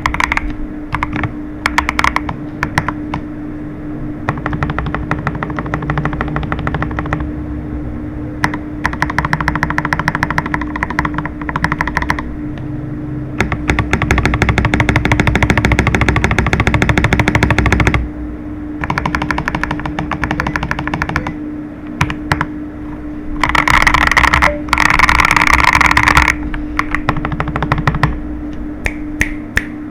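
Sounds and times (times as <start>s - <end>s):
mechanical keyboard typing: 0.0s - 3.2s, 4.3s - 7.3s, 8.4s - 12.3s, 13.4s - 18.0s, 18.8s - 21.4s, 23.4s - 28.2s.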